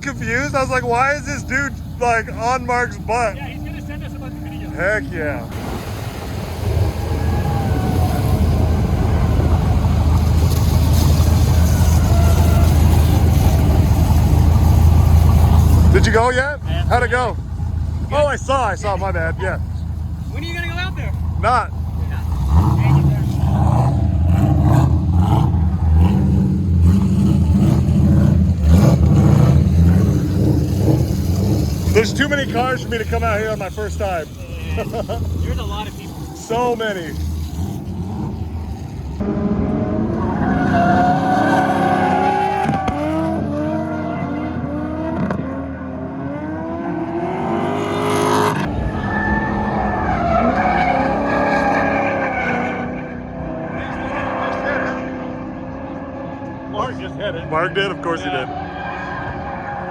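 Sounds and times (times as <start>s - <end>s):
car engine running: 0.0s - 5.5s, 6.6s - 40.6s
tyres skidding: 0.0s - 59.9s.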